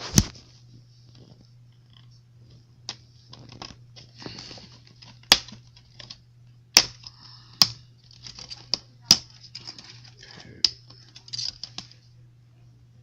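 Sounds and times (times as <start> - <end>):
steady low hum: 0.0 - 13.0
plastic laptop parts clicking: 4.6 - 11.9.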